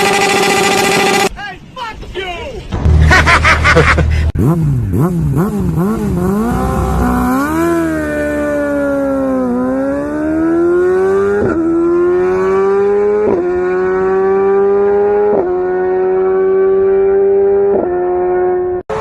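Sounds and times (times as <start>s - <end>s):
motorcycle engine accelerating: 0.0s - 1.3s, 2.8s - 19.0s.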